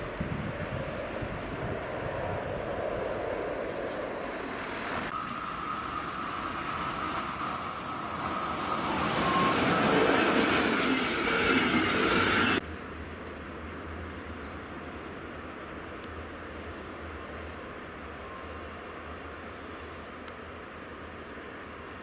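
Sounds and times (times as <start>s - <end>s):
train wheels on rail: 0.0s - 14.2s.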